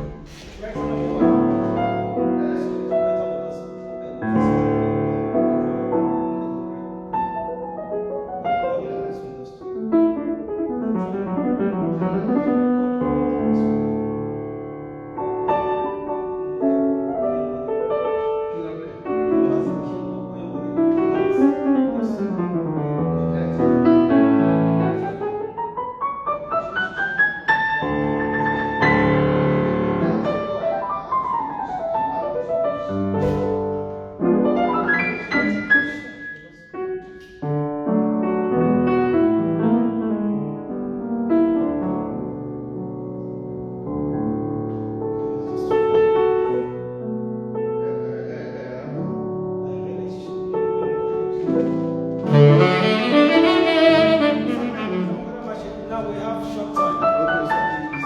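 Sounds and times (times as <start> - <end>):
piano keyboard playing chords: 0.0 - 36.0, 50.4 - 58.0.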